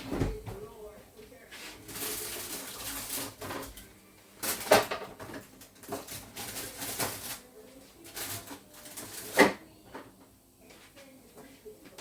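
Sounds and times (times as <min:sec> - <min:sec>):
kitchen things knocking and clinking: 0:01.9 - 0:07.4.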